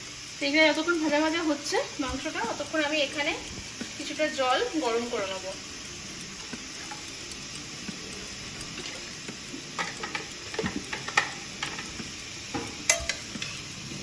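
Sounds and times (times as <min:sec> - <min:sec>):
food sizzling in a pot: 0:00.0 - 0:14.0
utensil scraping and knocking pot: 0:09.3 - 0:13.6.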